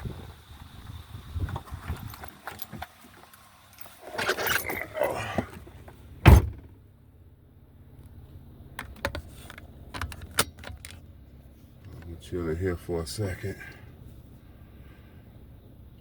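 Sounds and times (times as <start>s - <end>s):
outside wind noise: 0.0s - 16.0s
vehicle door shutting: 3.8s - 6.8s.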